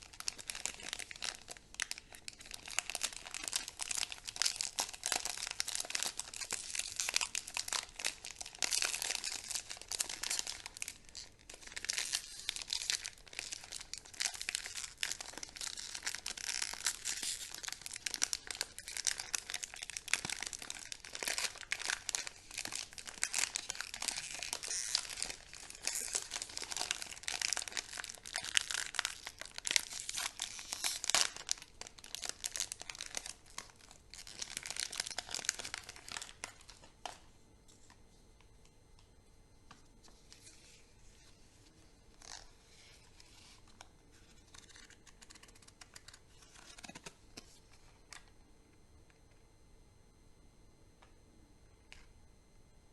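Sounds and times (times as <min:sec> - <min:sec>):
candy wrappers crinkling: 0:00.0 - 0:37.2.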